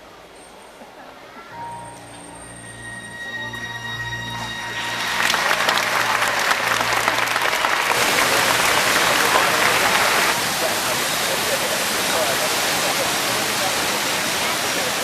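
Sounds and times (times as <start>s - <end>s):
held notes of stage music: 1.5s - 10.3s
audience applauding: 4.3s - 11.6s.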